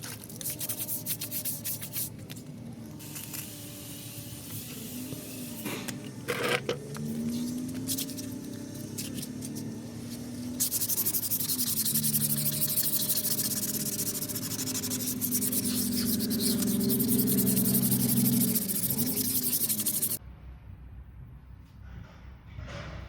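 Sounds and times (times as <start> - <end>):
sandpaper rubbing on car paint: 0.4 - 2.2, 7.3 - 20.2.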